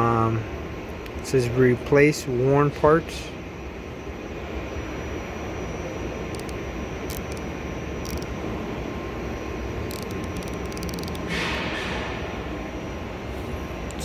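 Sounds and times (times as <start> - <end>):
rapid ticks: 8.1 - 8.3, 9.9 - 11.3.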